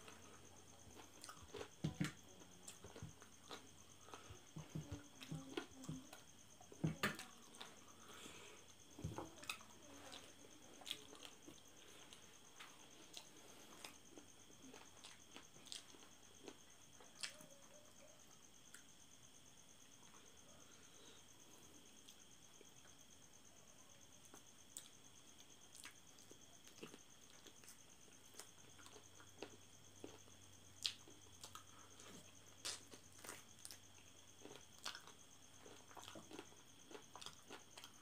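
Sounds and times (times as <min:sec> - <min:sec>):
person chewing and biting: 0:34.4 - 0:38.0.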